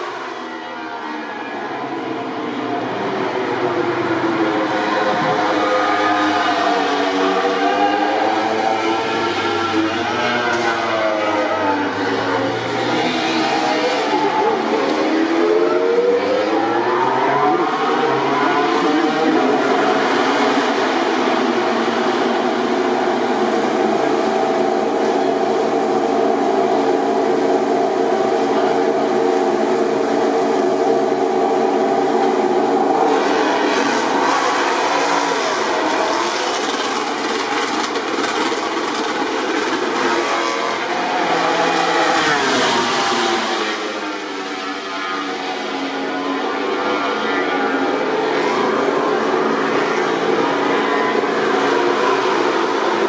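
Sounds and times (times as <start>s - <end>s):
racing motorcycle engines: 0.0s - 53.0s
motorcycle revving up: 32.2s - 45.7s.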